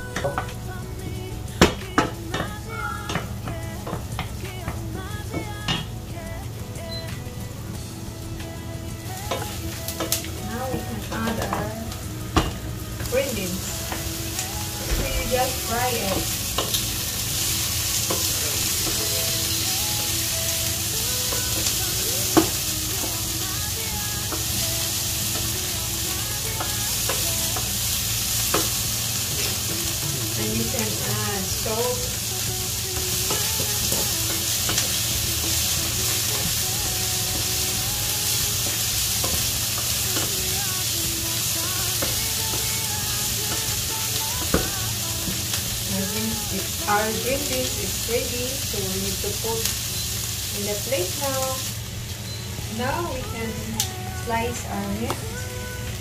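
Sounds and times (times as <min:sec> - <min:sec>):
vegetables sizzling in a pan: 0:00.0 - 0:56.0.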